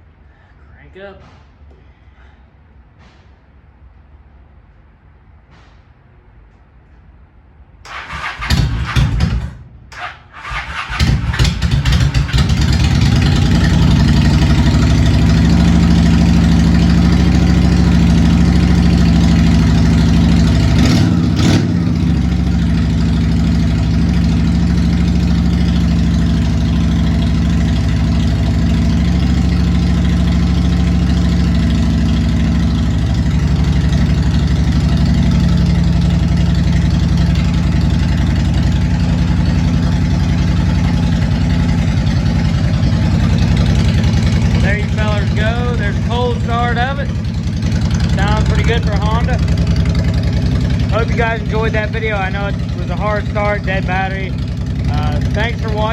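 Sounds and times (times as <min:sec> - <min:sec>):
motorcycle starter cranking: 0:07.9 - 0:14.2
motorcycle engine idling: 0:07.9 - 0:55.9.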